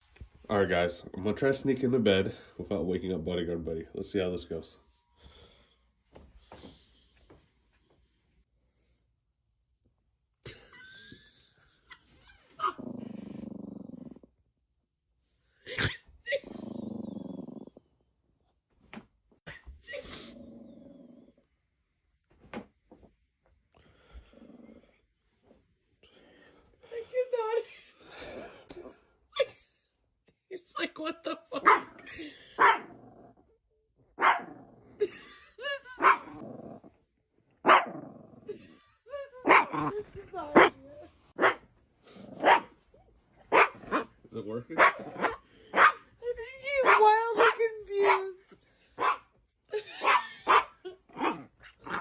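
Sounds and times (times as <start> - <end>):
dog growling low: 12.4 - 14.4, 15.7 - 18.0, 19.9 - 21.6, 23.9 - 25.4, 31.7 - 33.6, 34.2 - 35.3, 35.9 - 42.7, 50.5 - 52.0
dog barking: 31.6 - 32.0, 32.6 - 33.0, 34.2 - 34.6, 36.0 - 36.4, 37.6 - 38.0, 39.4 - 40.8, 41.4 - 41.7, 42.4 - 42.8, 43.5 - 46.0, 46.8 - 48.3, 49.0 - 49.3, 50.0 - 52.0
dog yelping: 32.6 - 32.9, 34.2 - 34.5, 35.9 - 36.4, 37.7 - 37.9, 39.4 - 40.8, 43.5 - 44.1, 46.8 - 48.2, 49.0 - 49.2.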